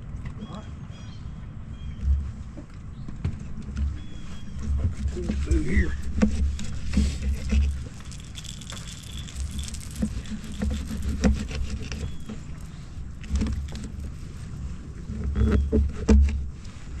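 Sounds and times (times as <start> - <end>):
sharp ticks and knocks: 6.1 - 14.1
rain pattering: 7.4 - 12.0.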